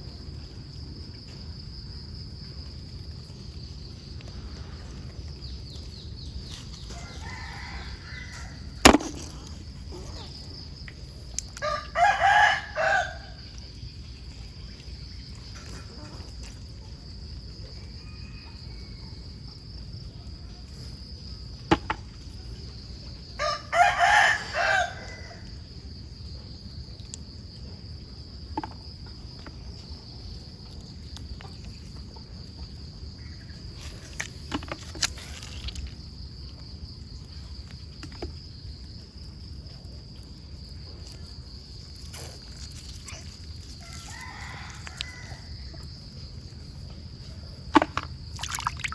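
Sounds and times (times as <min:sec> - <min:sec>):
rooster crowing: 0:06.9 - 0:08.8, 0:11.6 - 0:13.4, 0:23.4 - 0:25.5, 0:43.8 - 0:45.9.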